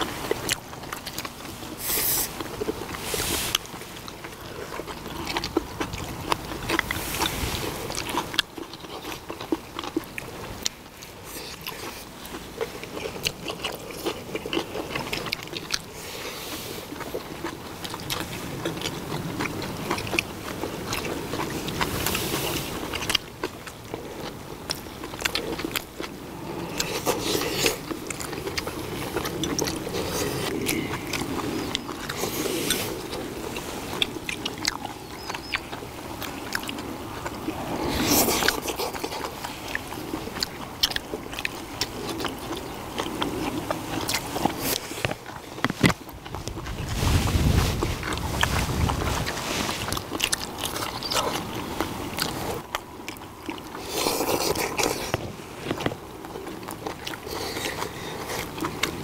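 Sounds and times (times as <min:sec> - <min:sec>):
people chewing food: 0:00.0 - 0:59.0
hissy mouth sounds: 0:01.7 - 0:03.8, 0:26.1 - 0:40.0.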